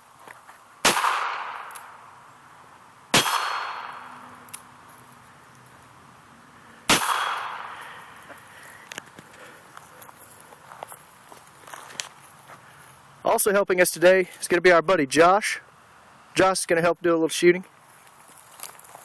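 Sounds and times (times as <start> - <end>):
pistol shots hitting steel blade: 0.8 - 2.0, 3.1 - 4.7, 6.9 - 8.1.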